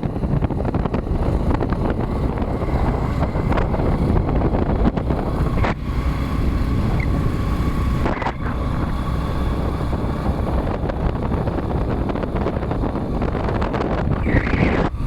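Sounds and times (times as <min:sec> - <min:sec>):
motorcycle running: 0:00.0 - 0:15.0
wind buffeting microphone: 0:00.0 - 0:15.0.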